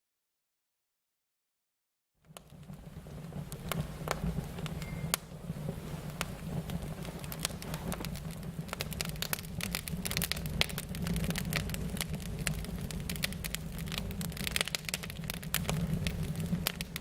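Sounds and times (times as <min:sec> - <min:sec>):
wood fire crackling and popping: 0:02.2 - 0:17.0.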